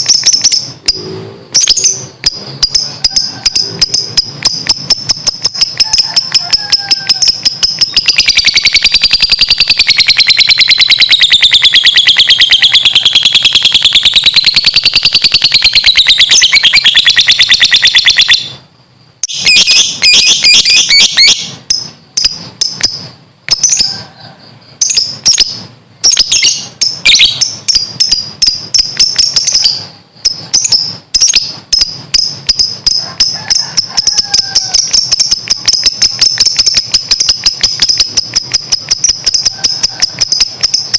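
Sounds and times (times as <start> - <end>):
bird shrill chattering trill: 0.0 - 18.6, 19.2 - 24.0, 24.8 - 40.9.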